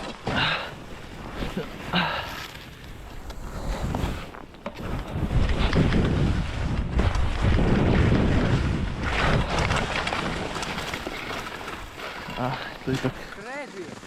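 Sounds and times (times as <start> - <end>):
wind buffeting microphone: 2.8 - 13.4.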